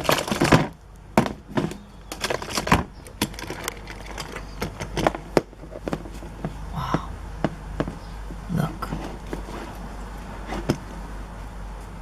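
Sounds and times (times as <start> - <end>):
toy truck clicks and knocks: 0.0 - 6.1.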